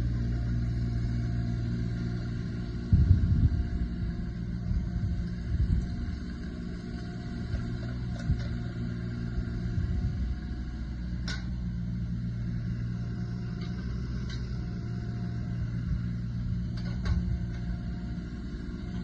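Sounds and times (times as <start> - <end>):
diesel excavator engine running: 0.0 - 19.0.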